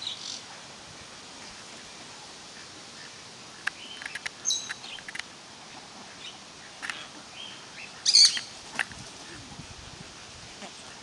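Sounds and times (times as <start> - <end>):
birds chirping: 2.6 - 5.2, 6.1 - 8.6.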